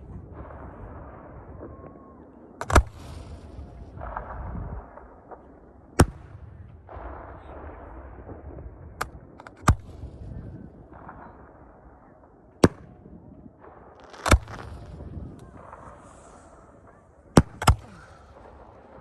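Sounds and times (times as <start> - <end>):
fireworks bangs: 0.0 - 19.0
rumbling hiss: 13.5 - 19.0.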